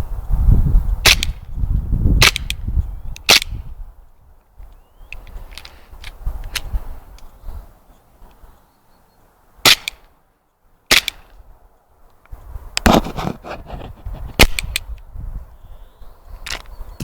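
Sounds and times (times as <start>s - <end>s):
airsoft pistol shots: 1.0s - 1.4s, 2.2s - 2.6s, 9.6s - 10.0s, 10.9s - 11.3s
rustling: 12.1s - 14.5s.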